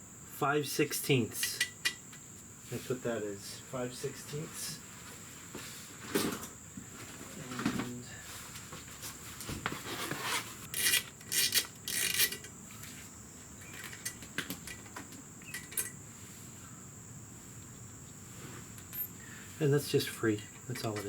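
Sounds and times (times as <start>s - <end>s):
wrench rasping and clinking metal: 10.7s - 12.5s.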